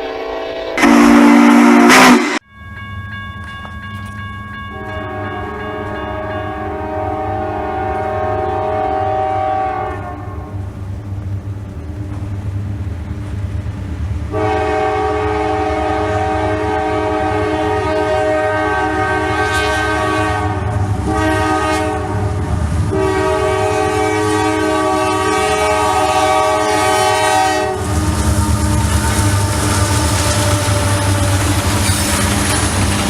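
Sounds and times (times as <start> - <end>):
locomotive air horn: 0.0 - 2.4, 4.7 - 10.6, 14.3 - 31.7
train rumbling past: 0.0 - 33.0.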